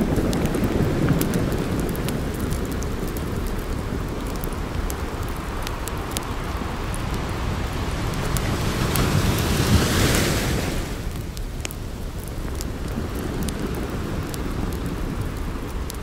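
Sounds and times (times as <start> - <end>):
ocean surf: 0.0 - 11.4
campfire crackling and popping: 0.0 - 16.0.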